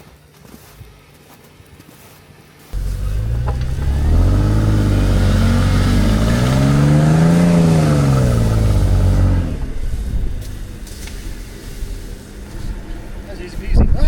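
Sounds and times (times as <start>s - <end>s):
vehicle engine revving: 2.8s - 14.0s.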